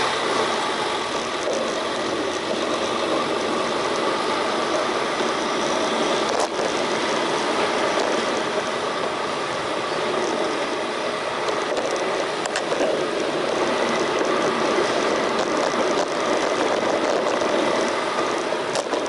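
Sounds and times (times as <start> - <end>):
street traffic: 0.0 - 19.0
sharp clicks or rattles: 11.4 - 19.0.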